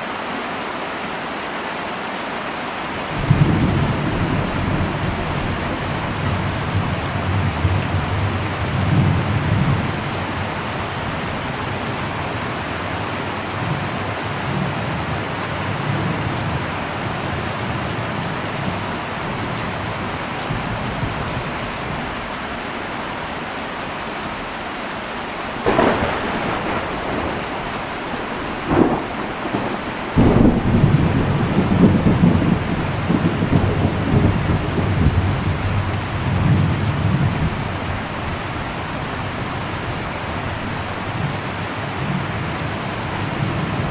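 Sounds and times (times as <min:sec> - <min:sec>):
heavy rain on a metal roof: 0:00.0 - 0:43.9
thunder: 0:03.2 - 0:12.4, 0:25.6 - 0:41.4.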